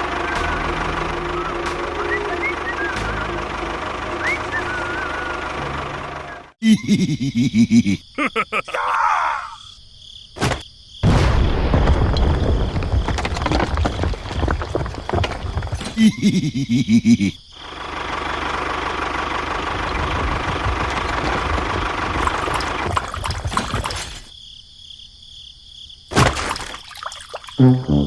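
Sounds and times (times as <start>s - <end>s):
small engine humming: 0.0s - 6.6s, 17.6s - 23.7s.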